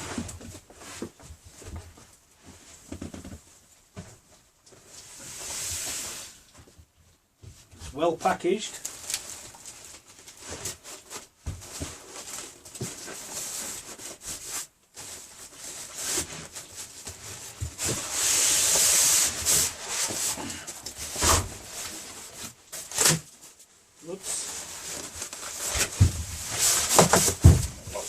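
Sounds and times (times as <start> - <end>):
cardboard rubbing and rustling: 9.0 - 23.6, 24.2 - 28.0
cardboard scraping: 9.1 - 23.6, 24.2 - 28.0.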